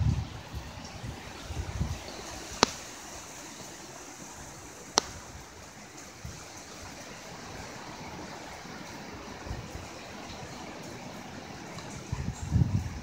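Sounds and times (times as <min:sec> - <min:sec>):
strong wind: 0:00.0 - 0:10.4, 0:11.9 - 0:13.0
heavy rain: 0:00.0 - 0:13.0
sharp clicks: 0:02.1 - 0:03.8, 0:04.9 - 0:05.4.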